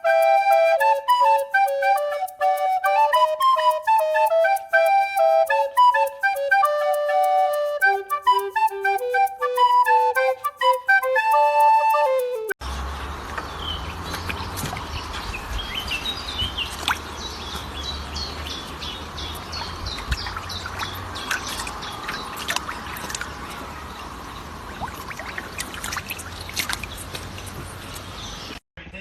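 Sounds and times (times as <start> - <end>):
bird chirping: 13.0 - 24.5, 26.3 - 28.6.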